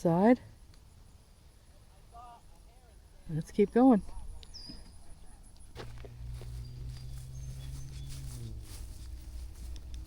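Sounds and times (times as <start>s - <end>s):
low steady hum: 3.0s - 10.0s
faint bird chirps: 4.0s - 5.7s, 6.4s - 8.5s
footsteps on dirt trail: 5.6s - 10.0s.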